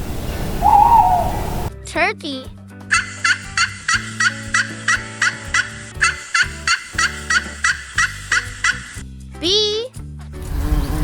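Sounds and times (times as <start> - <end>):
turkey gobbling: 0.1 - 1.7, 2.9 - 9.0.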